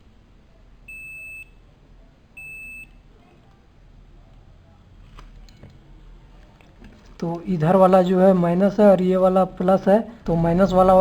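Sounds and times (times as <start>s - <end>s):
multimeter continuity beeps: 0.8s - 1.7s, 2.4s - 3.1s.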